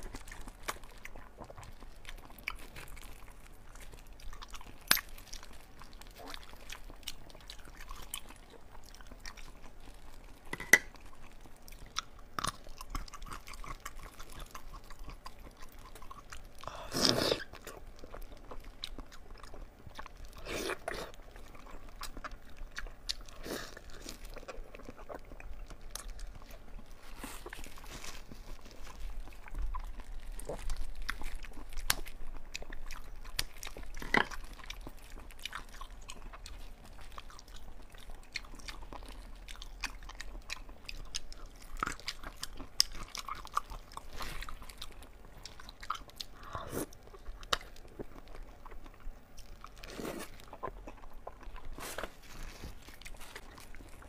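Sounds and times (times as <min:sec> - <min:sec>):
person biting and chewing: 0:38.2 - 0:54.0.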